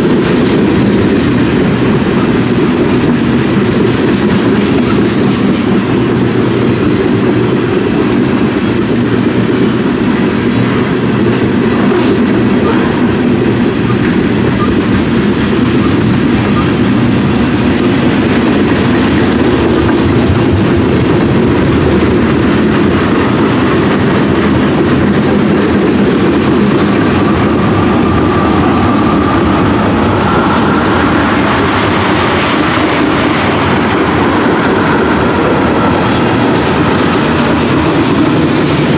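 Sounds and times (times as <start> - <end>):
train wheels rumbling on rails: 0.0 - 38.9
wheel squeal on rail: 13.8 - 16.9, 26.5 - 38.8.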